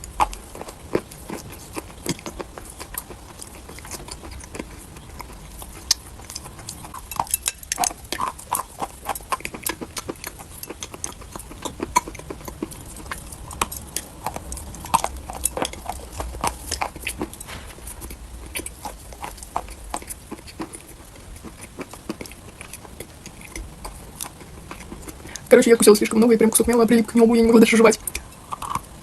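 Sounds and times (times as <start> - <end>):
person chewing chalk: 0.0 - 25.5, 27.9 - 29.0.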